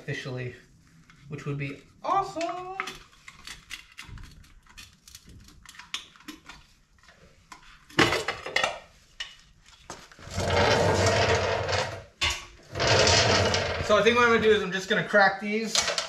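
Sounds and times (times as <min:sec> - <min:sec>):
steady rattling noise: 0:10.3 - 0:14.4.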